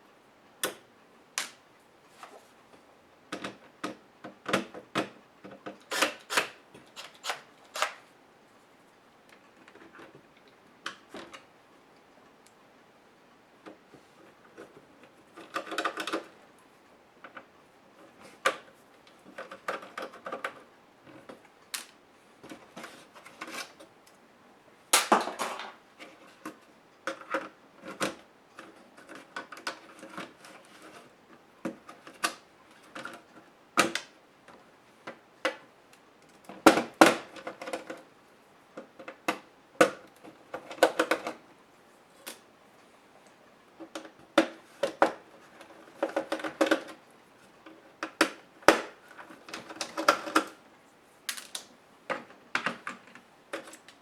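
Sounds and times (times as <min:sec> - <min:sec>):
laptop plastic parts clicking and rattling: 0:03.3 - 0:08.0, 0:14.5 - 0:16.4, 0:18.2 - 0:23.9, 0:25.2 - 0:35.6, 0:36.5 - 0:38.1, 0:38.8 - 0:41.4, 0:43.8 - 0:47.0, 0:47.6 - 0:50.6, 0:51.3 - 0:54.0.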